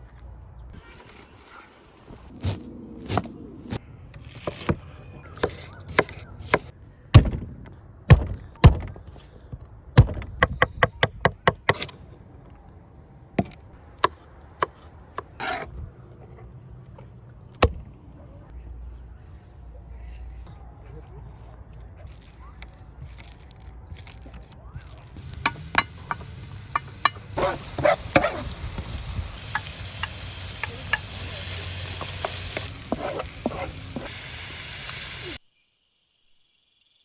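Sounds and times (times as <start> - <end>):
knife scraping board: 0.8 - 6.7, 15.2 - 15.7, 23.4 - 28.5, 29.6 - 34.1
knife chopping on cutting board: 5.4 - 6.7, 32.0 - 34.1.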